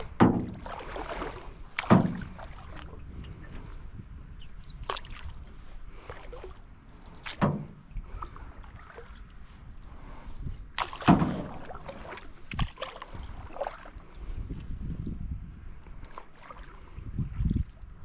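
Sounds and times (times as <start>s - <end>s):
paddle splashing water: 0.0s - 3.8s, 4.6s - 14.5s, 15.8s - 18.0s
sharp knocks on canoe: 0.1s - 0.8s, 1.8s - 2.5s, 7.2s - 7.8s, 10.8s - 11.8s.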